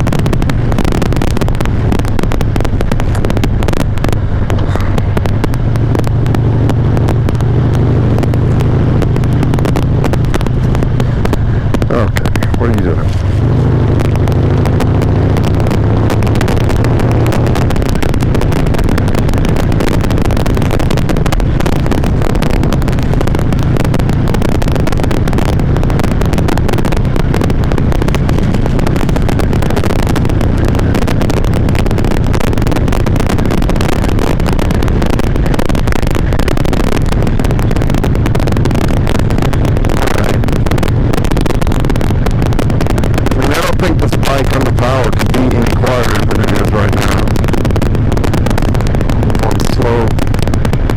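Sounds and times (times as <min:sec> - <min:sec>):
motorcycle engine running: 0:00.0 - 0:50.9
wind noise: 0:00.0 - 0:50.9.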